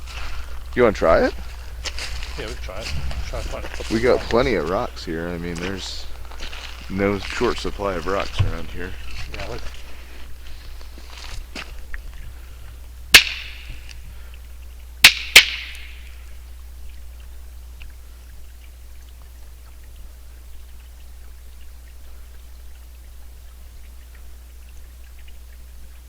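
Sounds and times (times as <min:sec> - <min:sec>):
rocks clacking together: 0:00.0 - 0:14.2.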